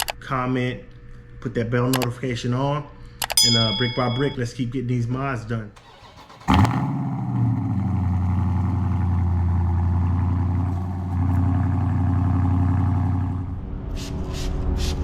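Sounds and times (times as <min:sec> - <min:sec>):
car engine idling: 0:05.8 - 0:13.6.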